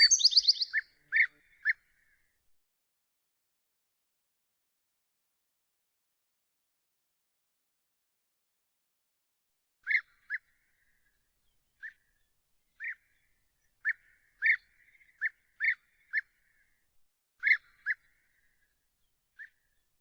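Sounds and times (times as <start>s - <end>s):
bird call notes: 0.0s - 0.8s.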